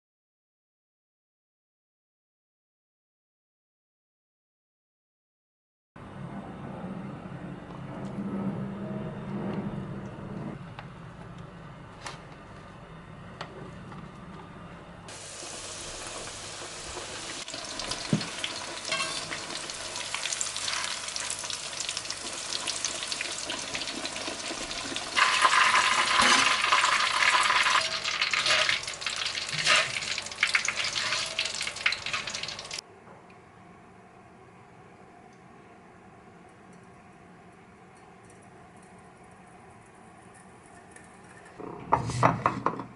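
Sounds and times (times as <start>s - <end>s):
food sizzling in hot oil: 15.1s - 32.8s.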